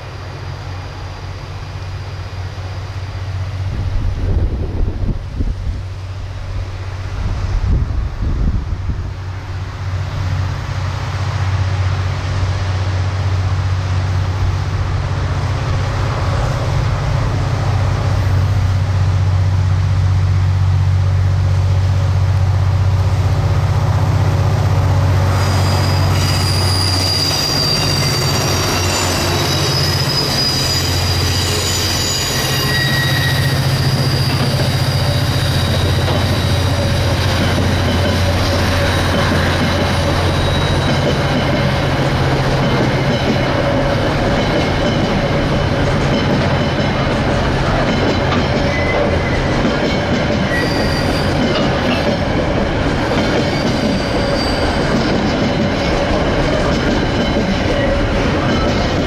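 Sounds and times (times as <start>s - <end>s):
diesel locomotive engines droning: 0.0s - 59.0s
passing train rumble: 0.0s - 59.0s
wagon wheels squealing: 25.3s - 46.4s, 47.7s - 49.6s, 50.4s - 52.2s, 53.3s - 59.0s.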